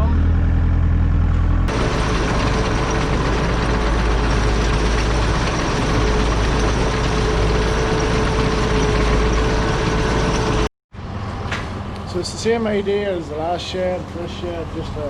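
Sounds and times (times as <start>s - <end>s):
tractor engine running: 1.2s - 10.7s
steady mechanical whine: 1.7s - 15.0s.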